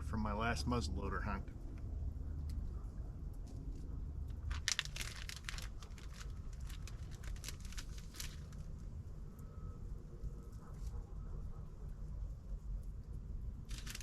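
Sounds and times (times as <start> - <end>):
plastic packaging crinkling: 4.4 - 8.7, 13.7 - 14.0.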